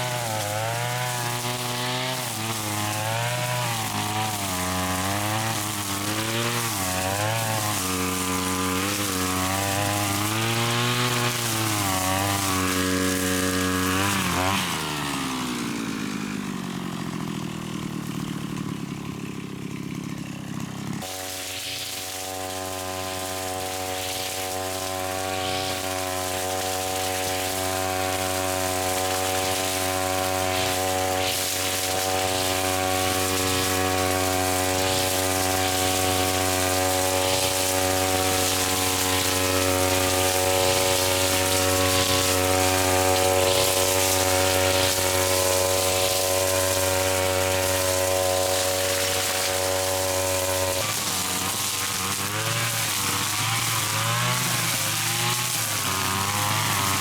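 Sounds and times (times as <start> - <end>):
grass cutter engine running: 0.0 - 57.0
brief hiss: 21.1 - 22.3.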